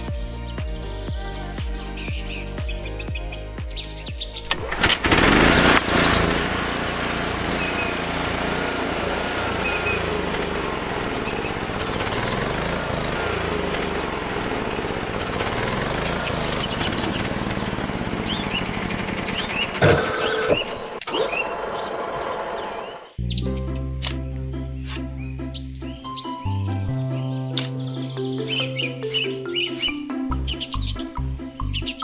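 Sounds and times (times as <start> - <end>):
small motor running: 4.5 - 23.1
loud burst of noise: 19.8 - 23.1
faint bird chirps: 27.5 - 31.2.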